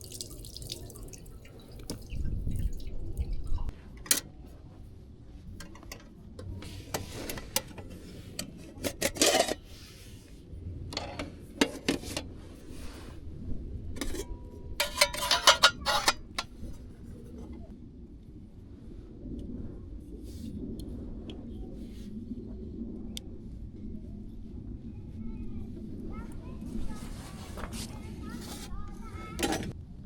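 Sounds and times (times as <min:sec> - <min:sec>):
cookware and utensils clattering: 0:06.9 - 0:09.7, 0:10.9 - 0:12.3, 0:14.0 - 0:16.8, 0:29.4 - 0:29.8.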